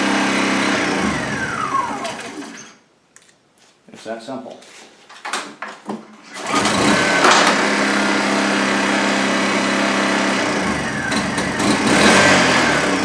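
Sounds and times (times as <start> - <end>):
generator engine running: 0.0 - 2.6, 6.3 - 13.0.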